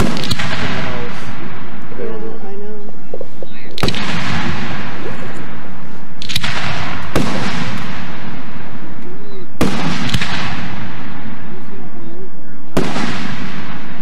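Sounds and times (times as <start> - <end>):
firework shells booming: 0.0 - 14.0.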